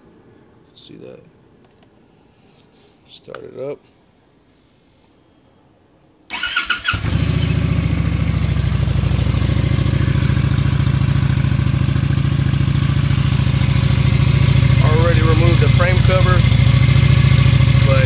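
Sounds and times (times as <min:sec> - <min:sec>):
motorcycle engine idling: 0:07.0 - 0:18.0.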